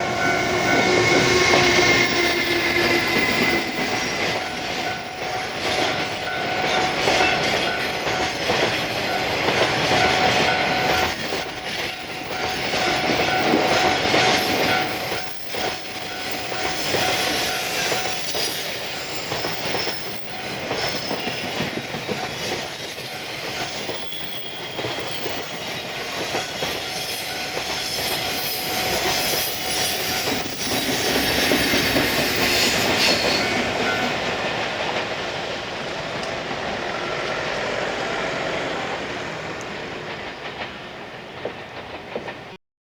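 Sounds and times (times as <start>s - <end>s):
steady whining tones: 0.0s - 7.1s
wagon wheels clattering over rails: 0.0s - 35.2s.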